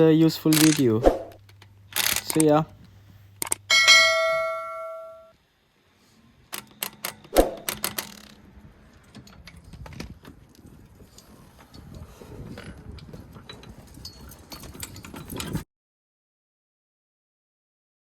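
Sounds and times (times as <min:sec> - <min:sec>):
sharp clicks and knocks: 0:00.5 - 0:02.7, 0:03.4 - 0:03.7, 0:06.5 - 0:10.6
metallic ding: 0:03.7 - 0:05.3.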